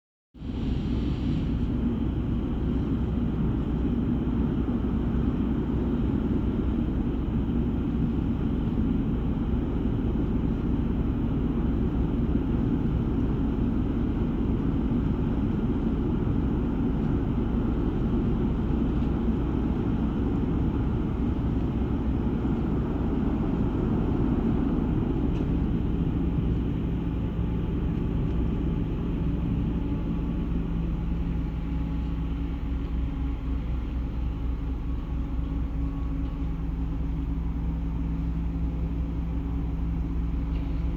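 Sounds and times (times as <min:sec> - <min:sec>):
ship engines rumbling: 0:00.4 - 0:40.9.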